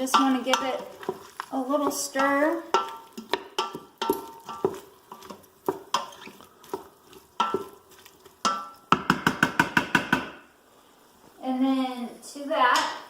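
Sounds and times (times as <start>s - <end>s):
utensil clinking in metal pot: 0.0s - 9.6s
food sizzling: 0.0s - 13.0s.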